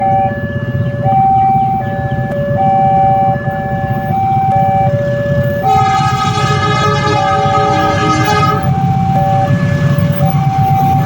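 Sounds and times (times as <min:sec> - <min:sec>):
level crossing two-tone alarm: 0:02.6 - 0:09.6
locomotive horn blowing: 0:05.6 - 0:09.1
train rumbling: 0:05.7 - 0:08.9.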